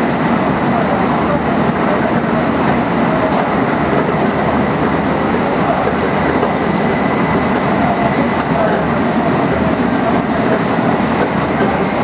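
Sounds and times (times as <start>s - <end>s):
high-speed train rushing: 0.0s - 12.0s
train wheels clattering: 3.2s - 12.0s.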